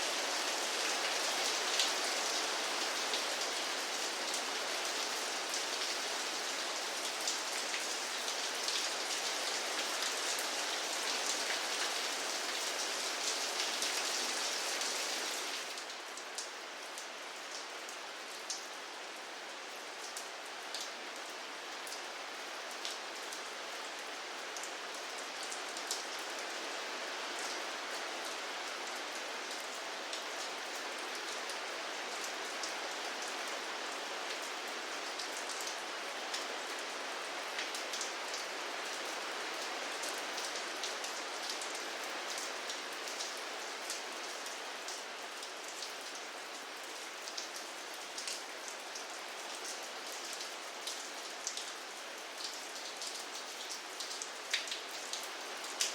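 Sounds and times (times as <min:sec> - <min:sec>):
steady rain hiss: 0:00.0 - 0:55.9
raindrops ticking on a surface: 0:40.0 - 0:55.9.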